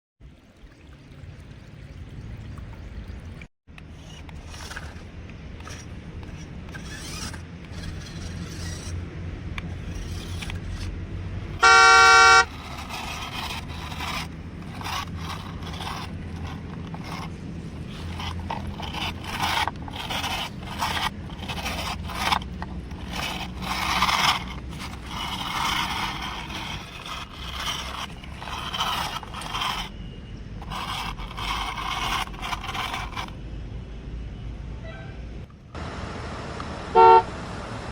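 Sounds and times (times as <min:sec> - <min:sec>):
plastic toys scraping and clattering: 0:03.7 - 0:33.4
horn honk: 0:11.6 - 0:12.6, 0:34.8 - 0:35.4, 0:36.9 - 0:37.3.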